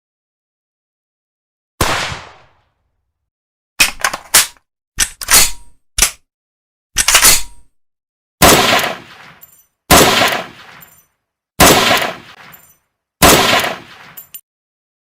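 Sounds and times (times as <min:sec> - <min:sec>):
gunshots with echo: 0:01.8 - 0:02.6, 0:08.4 - 0:10.9, 0:11.6 - 0:12.6, 0:13.2 - 0:14.3.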